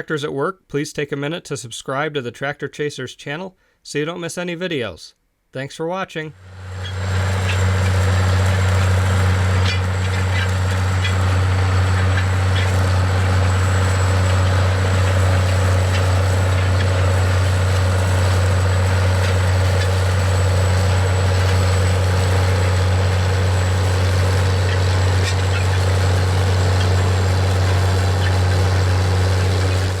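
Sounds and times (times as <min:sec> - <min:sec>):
tractor diesel engine droning: 0:06.4 - 0:30.0.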